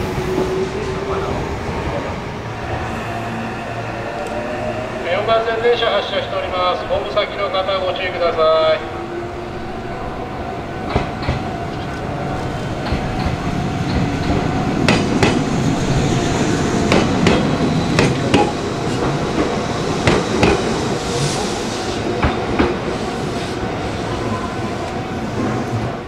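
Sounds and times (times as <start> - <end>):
train running rumble: 10.8 - 26.0
train wheels clacking over rail joints: 12.8 - 15.4, 16.9 - 20.8.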